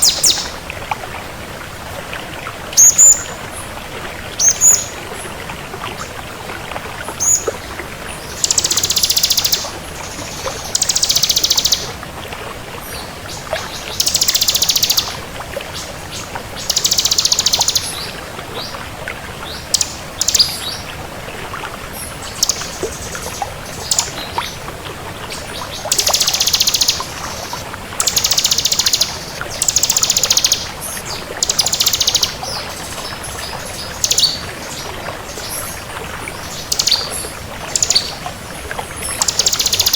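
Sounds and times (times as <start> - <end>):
bird singing trilled phrases: 0.0 - 0.6, 2.8 - 3.3, 4.4 - 4.9, 8.3 - 11.9, 13.6 - 15.2, 16.6 - 18.1, 19.7 - 20.8, 22.3 - 24.4, 25.8 - 34.8, 36.4 - 38.2, 39.1 - 39.9.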